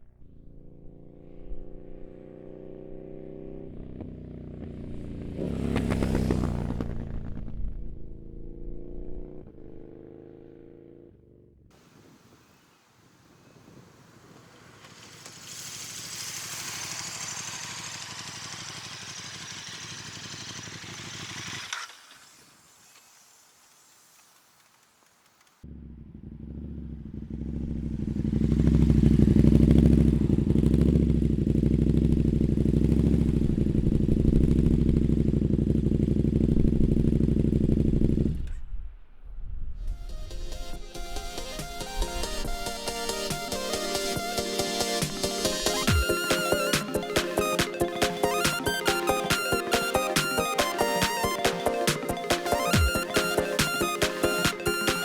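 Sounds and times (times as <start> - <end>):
motorcycle engine idling: 3.4 - 11.7, 13.4 - 22.2, 25.6 - 38.5
rushing hiss: 13.5 - 25.5.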